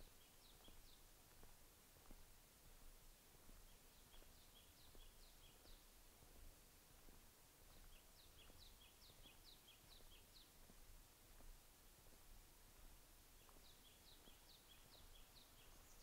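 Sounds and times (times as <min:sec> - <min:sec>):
bird singing: 0:00.0 - 0:01.0, 0:03.6 - 0:05.9, 0:07.7 - 0:10.6, 0:13.4 - 0:16.0
faint outdoor hush: 0:00.0 - 0:16.0.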